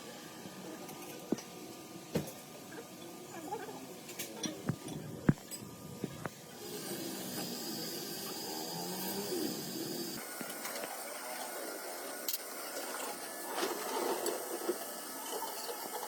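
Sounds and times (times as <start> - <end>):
steady hiss with high whine: 4.7 - 16.0.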